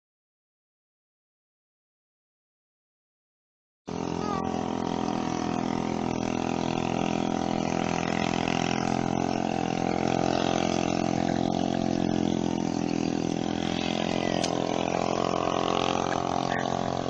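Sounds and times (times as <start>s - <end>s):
engine running steadily: 3.9s - 17.0s.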